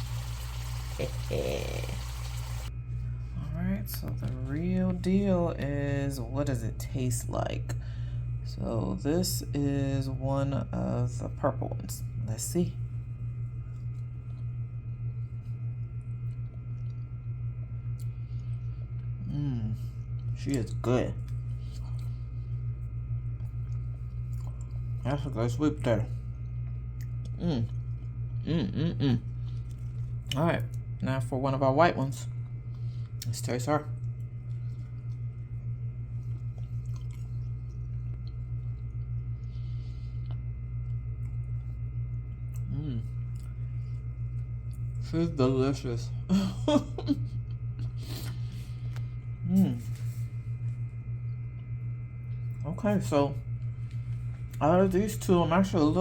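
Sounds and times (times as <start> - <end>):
low hum: 0.0 - 56.0
person chewing: 23.4 - 24.8, 29.3 - 30.8, 36.2 - 41.7, 42.3 - 45.0.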